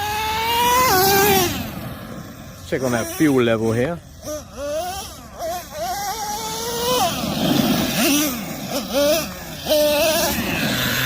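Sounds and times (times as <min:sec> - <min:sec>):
small engine revving: 0:00.0 - 0:11.0.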